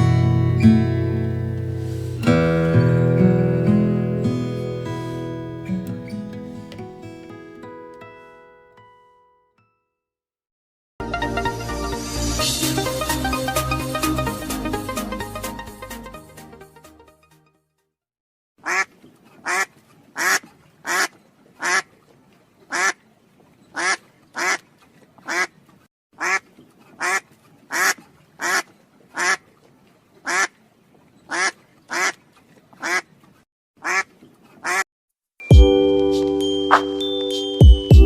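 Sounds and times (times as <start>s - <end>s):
duck quacking: 18.6s - 21.9s, 22.7s - 23.0s, 23.8s - 24.6s, 25.3s - 25.5s, 26.2s - 26.4s, 27.0s - 29.4s, 30.3s - 30.5s, 31.3s - 32.2s, 32.8s - 33.1s, 33.8s - 34.8s.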